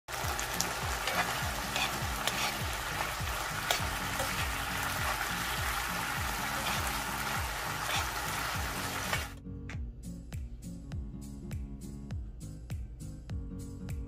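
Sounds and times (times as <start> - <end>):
food sizzling in a pan: 0.0 - 9.4
metal spoon scraping a pan: 0.8 - 9.3.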